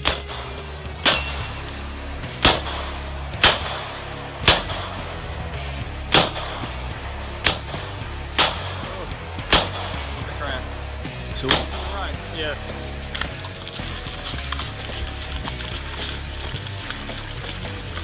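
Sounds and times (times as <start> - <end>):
gunshots: 0.0 - 13.6
background music: 0.0 - 18.0.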